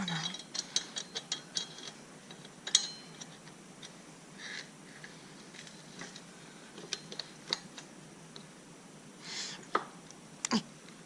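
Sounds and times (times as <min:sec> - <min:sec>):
metallic clicks of bike chain: 0:00.0 - 0:03.9
sharp ringing clink: 0:02.7 - 0:03.2.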